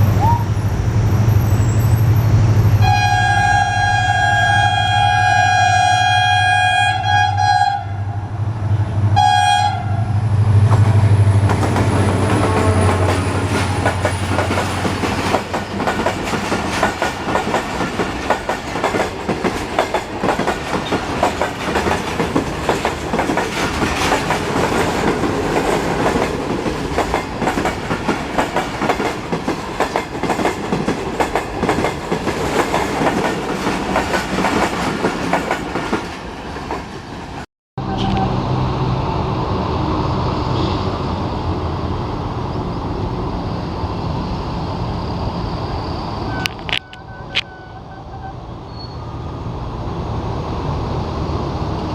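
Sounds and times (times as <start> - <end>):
locomotive horn: 2.8 - 8.3, 9.1 - 10.2, 11.9 - 13.7, 37.8 - 38.4, 46.3 - 48.5.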